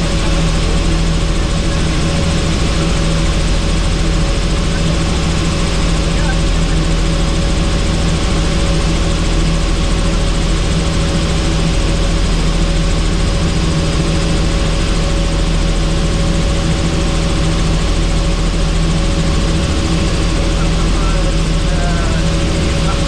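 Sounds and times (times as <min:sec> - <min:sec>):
helicopter engine and rotor drone: 0:00.0 - 0:23.0.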